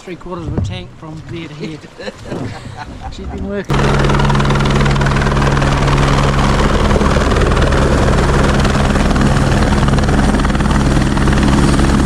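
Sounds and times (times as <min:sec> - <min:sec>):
engine running at constant revs: 0:02.6 - 0:12.0.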